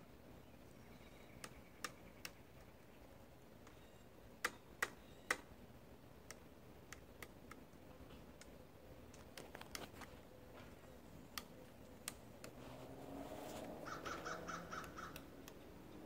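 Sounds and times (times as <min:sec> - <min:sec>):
woodpecker tapping on wood: 0:01.4 - 0:02.8, 0:04.4 - 0:05.5, 0:13.7 - 0:15.7.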